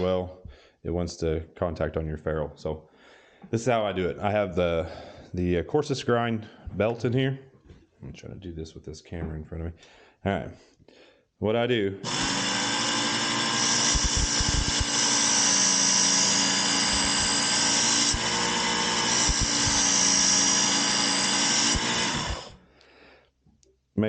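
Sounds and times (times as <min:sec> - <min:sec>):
belt sharpener motor running: 0:12.0 - 0:22.6.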